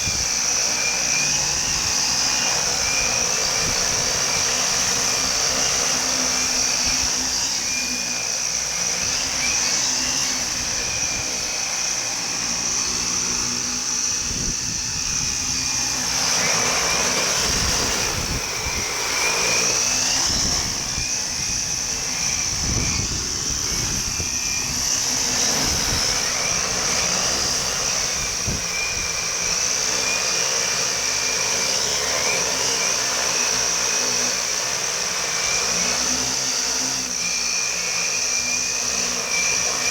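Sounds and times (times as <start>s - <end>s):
wind buffeting microphone: 0.0s - 0.5s, 12.8s - 29.6s
drone motor whine: 0.0s - 39.9s.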